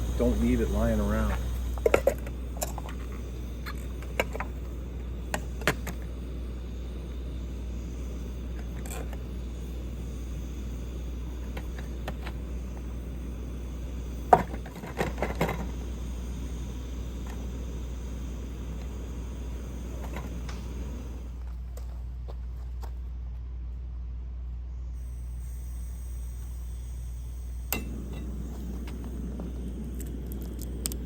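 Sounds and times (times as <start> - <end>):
camp stove rumbling: 0.0 - 22.0, 25.4 - 31.0.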